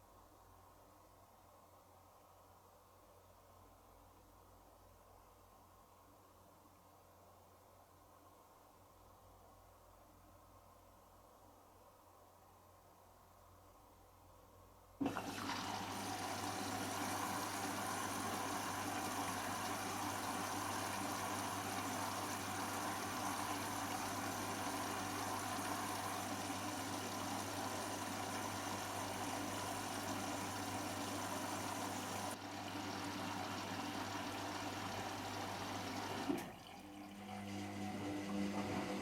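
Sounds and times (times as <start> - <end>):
water rushing into machine: 15.0 - 39.0.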